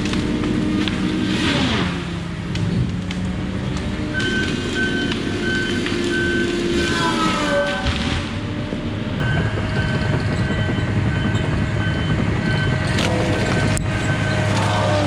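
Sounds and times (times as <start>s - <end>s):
diesel engine running: 0.0s - 15.0s
backup alarm beeping: 9.2s - 15.0s.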